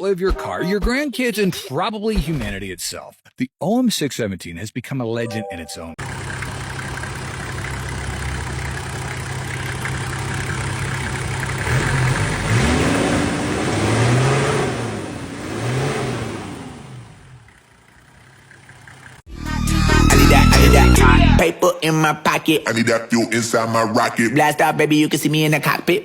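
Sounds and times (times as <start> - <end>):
diesel engine revving: 6.0 - 21.4.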